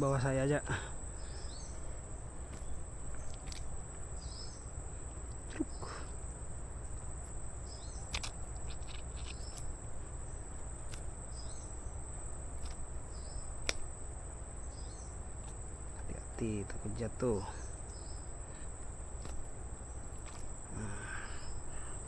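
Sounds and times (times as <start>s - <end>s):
insects buzzing: 0.0s - 22.0s
low steady rumble: 0.0s - 22.0s
sharp clicks: 8.0s - 9.7s, 13.6s - 13.9s.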